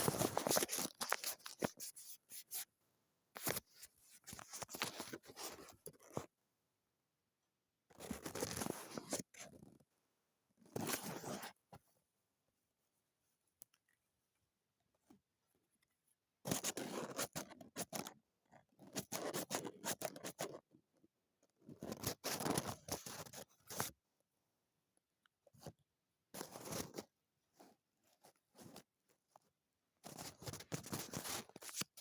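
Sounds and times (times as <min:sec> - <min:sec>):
scissors snipping paper: 0:00.0 - 0:02.6.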